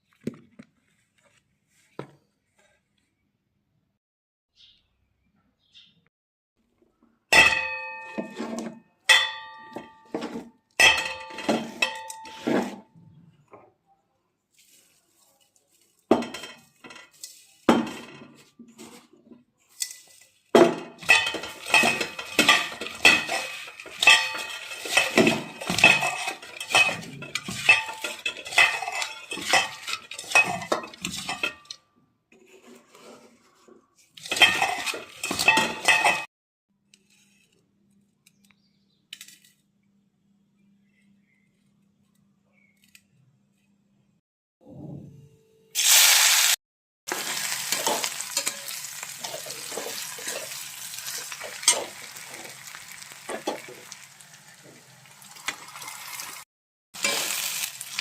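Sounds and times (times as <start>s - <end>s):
metal utensils scraping a pan: 7.4s - 12.9s, 14.6s - 31.8s, 32.4s - 36.3s, 47.1s - 56.4s, 57.0s - 58.0s.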